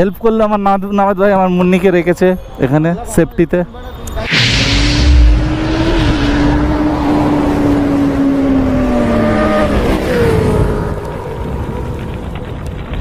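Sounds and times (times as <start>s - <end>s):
motorcycle engine revving: 4.5s - 11.6s.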